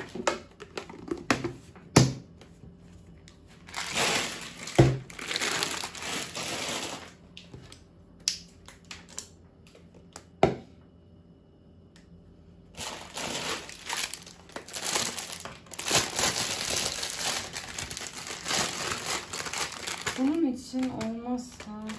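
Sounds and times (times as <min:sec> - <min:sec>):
plastic food packets crinkling: 0:03.2 - 0:07.8, 0:12.7 - 0:21.9.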